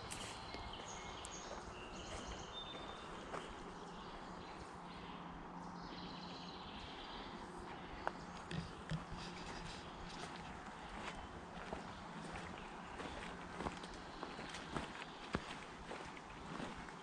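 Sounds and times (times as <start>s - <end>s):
wild birds chirping: 0.0s - 17.0s.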